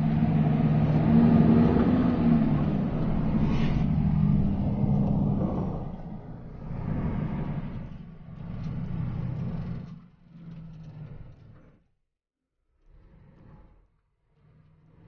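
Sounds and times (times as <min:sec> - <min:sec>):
vehicle engine running: 0:00.0 - 0:11.7.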